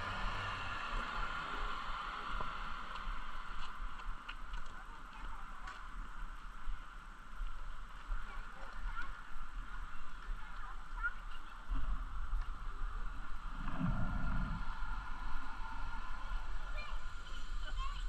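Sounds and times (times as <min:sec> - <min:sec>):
wind rumble on microphone: 0:00.0 - 0:18.0
steady hiss: 0:11.8 - 0:18.0.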